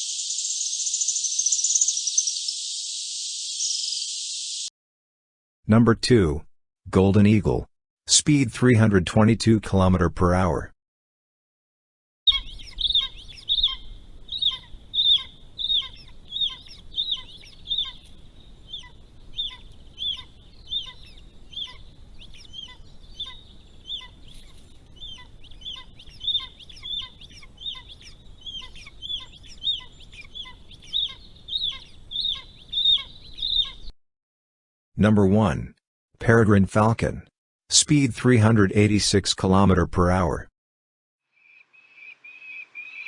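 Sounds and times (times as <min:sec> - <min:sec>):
eagle yelping calls: 0:12.3 - 0:33.9, 0:41.8 - 0:43.0.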